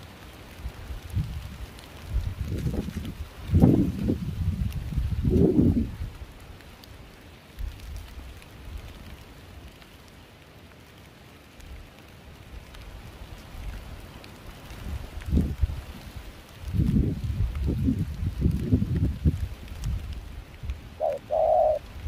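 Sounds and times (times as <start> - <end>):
raindrops pattering: 0.0 - 22.0
steady rain hiss: 0.0 - 22.0
wind rumbling on microphone: 0.5 - 6.7, 12.6 - 22.0.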